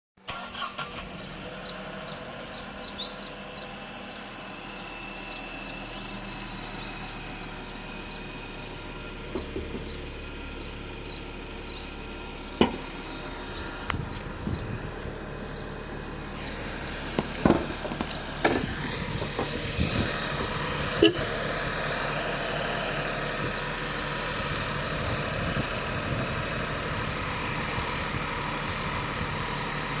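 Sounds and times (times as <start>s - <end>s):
car engine idling: 0.3s - 30.0s.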